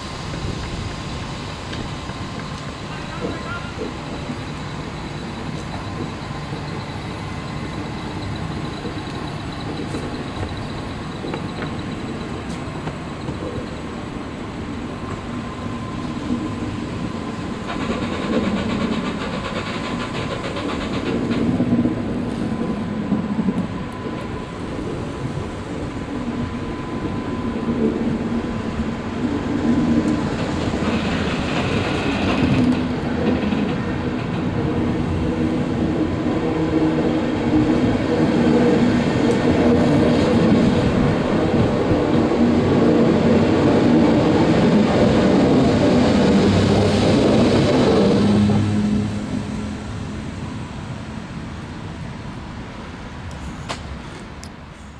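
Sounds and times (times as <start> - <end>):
train wheels clicking over rails: 0.0 - 27.0, 27.6 - 49.6
hiss: 16.8 - 21.4.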